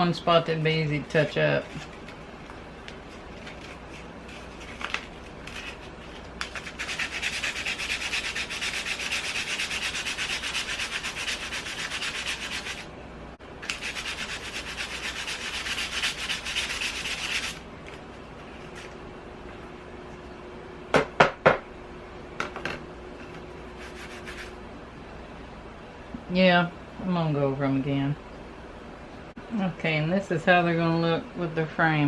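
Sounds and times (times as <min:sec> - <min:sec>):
sandpaper rasping on painted wood: 0:05.5 - 0:12.9, 0:13.7 - 0:17.6, 0:23.8 - 0:24.6.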